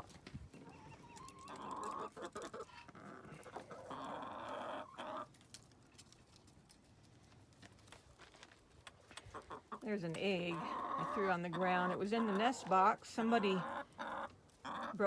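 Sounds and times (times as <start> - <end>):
hens clucking: 0.0 - 6.4, 8.9 - 15.0
hen drawn-out calls: 9.3 - 15.0.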